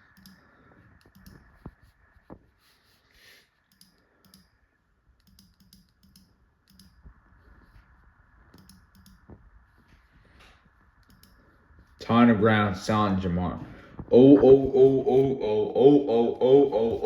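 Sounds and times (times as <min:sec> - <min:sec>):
keyboard typing: 0:00.0 - 0:01.7, 0:03.6 - 0:04.6, 0:05.2 - 0:07.1, 0:08.5 - 0:09.4, 0:11.0 - 0:11.4.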